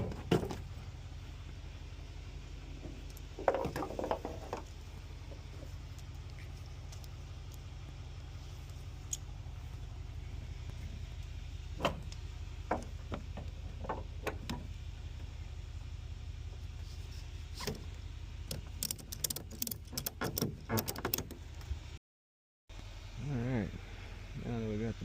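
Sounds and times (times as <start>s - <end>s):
steady low hum: 0.0s - 19.9s, 22.7s - 25.0s.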